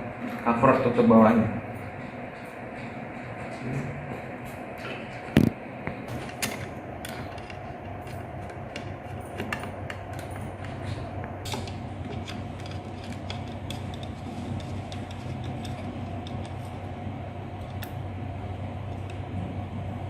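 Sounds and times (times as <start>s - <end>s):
steady low hum: 0.0s - 20.0s
screwdriver clicking and creaking: 6.2s - 16.8s.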